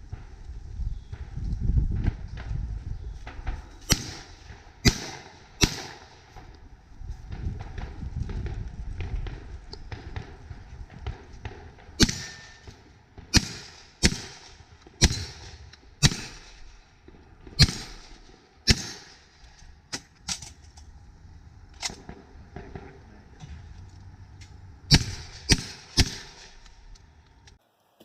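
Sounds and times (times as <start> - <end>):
loud shotgun shots: 3.8 - 6.3, 11.5 - 12.7, 13.3 - 16.8, 17.5 - 20.0, 24.9 - 26.9.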